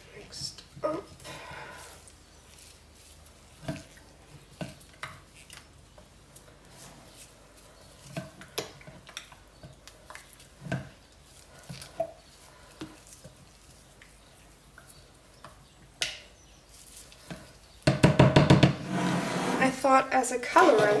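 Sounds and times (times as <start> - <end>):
spatula scraping a container: 18.8 - 21.0.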